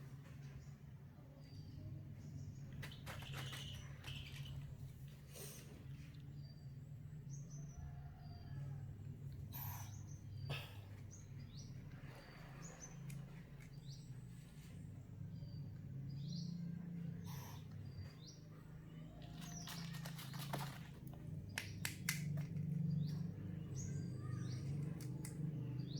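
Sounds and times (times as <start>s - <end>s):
bird chirping: 0.4s - 8.6s.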